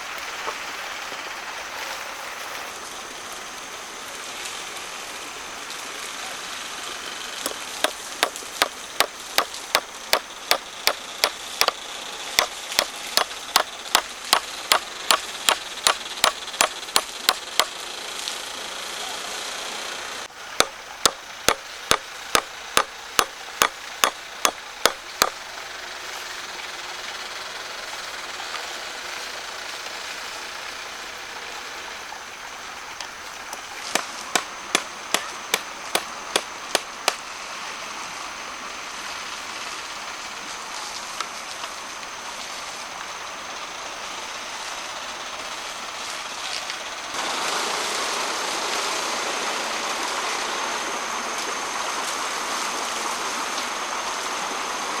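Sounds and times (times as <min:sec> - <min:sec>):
tool striking wood: 0:07.5 - 0:11.8, 0:12.4 - 0:17.7, 0:20.6 - 0:25.4, 0:33.9 - 0:37.2.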